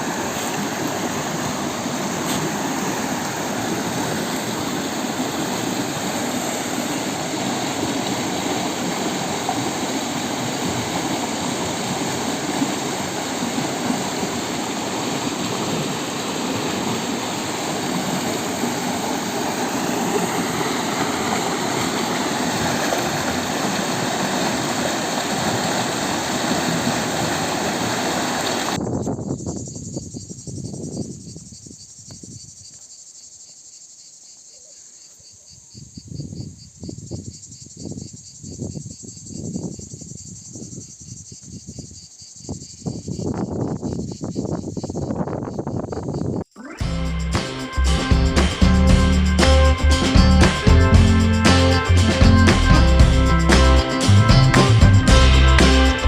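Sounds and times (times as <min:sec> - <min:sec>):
faint insect chirping: 0:00.0 - 0:22.6, 0:28.8 - 0:46.8
rushing stream water: 0:00.0 - 0:28.8, 0:46.6 - 0:56.0.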